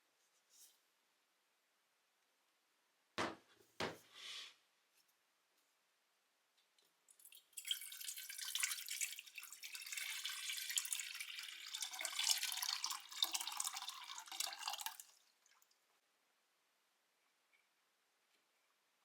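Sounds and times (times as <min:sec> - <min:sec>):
water pouring: 0:07.1 - 0:15.8.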